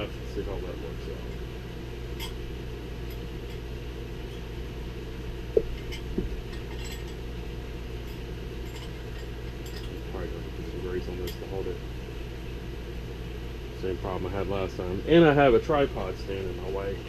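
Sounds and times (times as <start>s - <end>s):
steady low hum: 0.0s - 17.0s
metallic clinks of parts: 5.7s - 7.2s, 8.0s - 10.1s.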